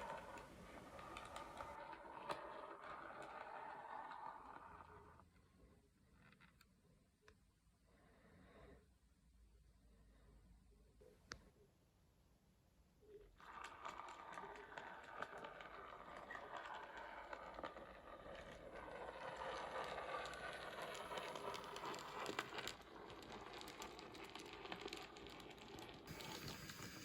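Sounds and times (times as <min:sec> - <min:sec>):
wheel clicks: 0:00.0 - 0:04.8
model train rolling rumble: 0:00.0 - 0:05.2, 0:13.5 - 0:27.0.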